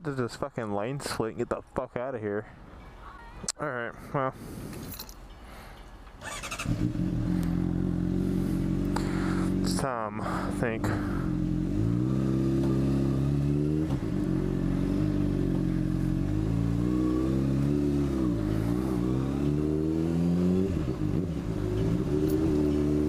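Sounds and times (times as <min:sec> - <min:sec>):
motorcycle engine revving and shifting: 0:06.2 - 0:23.0.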